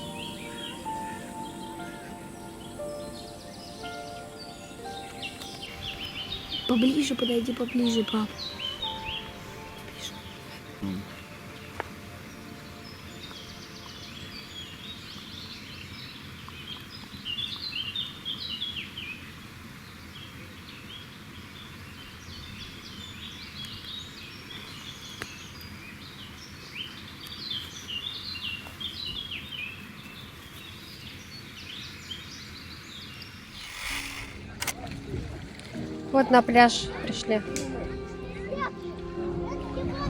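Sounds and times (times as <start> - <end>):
steady background hiss: 0.0 - 16.5
songbirds chirping: 0.0 - 34.2.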